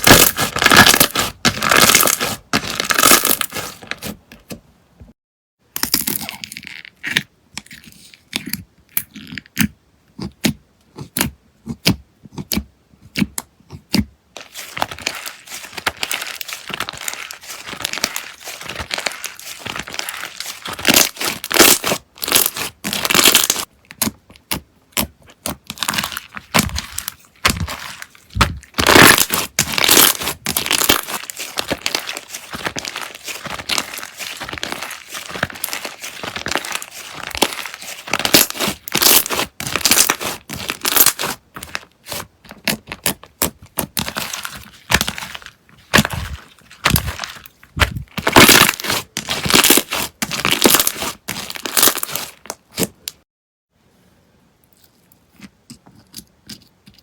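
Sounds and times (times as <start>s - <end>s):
slime crackling and popping: 0.0s - 3.8s, 14.4s - 53.1s.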